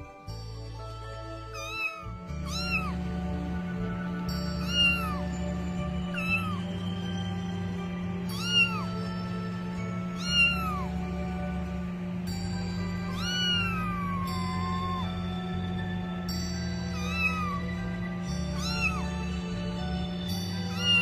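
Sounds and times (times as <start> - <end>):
background music: 0.0 - 21.0
cat meowing: 1.6 - 3.0, 4.6 - 5.2, 6.1 - 6.7, 8.3 - 9.0, 10.1 - 10.9, 13.1 - 15.2, 16.9 - 17.7, 18.5 - 19.2, 20.7 - 21.0.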